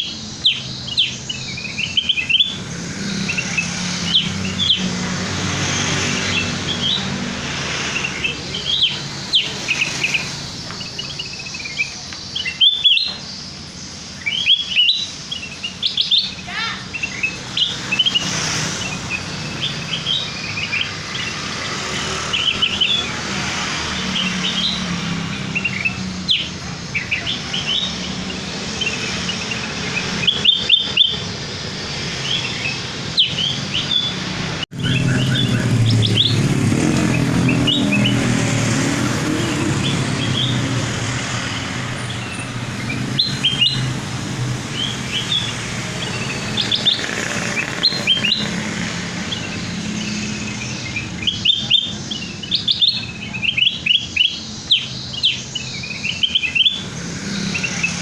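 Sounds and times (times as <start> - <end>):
bulbul chirping song: 0.0 - 58.0.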